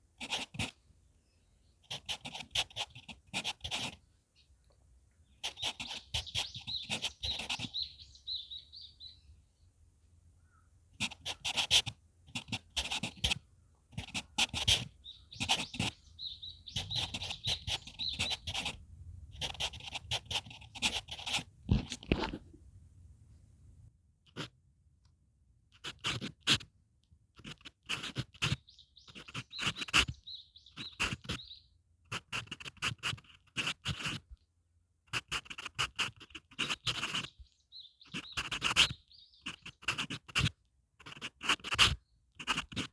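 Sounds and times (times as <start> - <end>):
pencil writing on paper: 0.2 - 0.8, 1.9 - 4.0, 5.4 - 7.8, 11.0 - 16.0, 16.7 - 18.8, 19.4 - 22.4, 24.3 - 24.5, 25.8 - 26.7, 27.4 - 30.2, 30.8 - 31.5, 32.1 - 34.3, 35.1 - 37.3, 38.1 - 42.9
birds singing: 5.3 - 9.3, 14.7 - 18.7, 28.4 - 31.8, 36.6 - 39.9.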